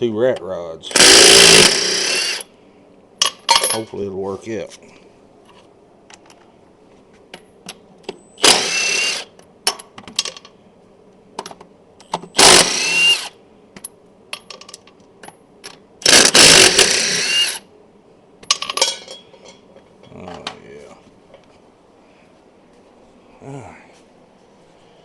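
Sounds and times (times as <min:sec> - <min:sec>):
impact wrench bursts: 0:00.9 - 0:02.5, 0:08.4 - 0:09.3, 0:12.3 - 0:13.4, 0:16.0 - 0:17.6.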